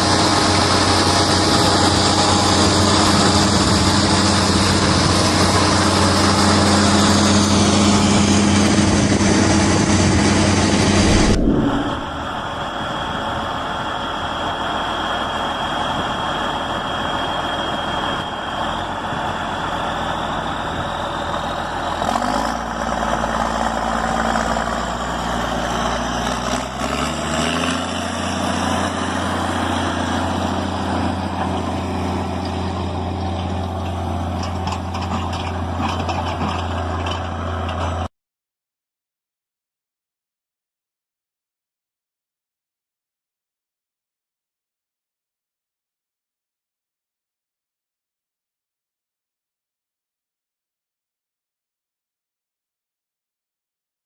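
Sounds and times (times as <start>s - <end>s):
tractor diesel engine running: 0.0s - 38.1s.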